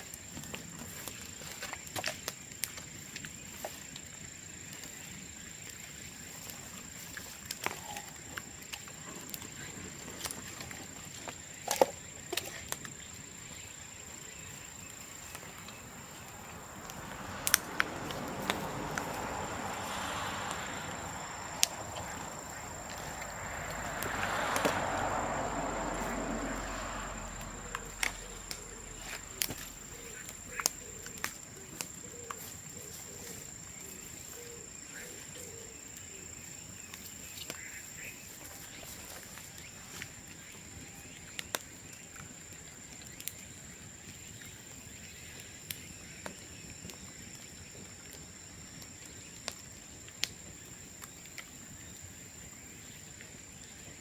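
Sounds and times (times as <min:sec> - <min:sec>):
bonfire crackling: 0:00.0 - 0:54.0
fire rushing: 0:12.2 - 0:34.3
bamboo popping and cracking: 0:16.4 - 0:20.7, 0:21.6 - 0:25.1, 0:27.7 - 0:32.5.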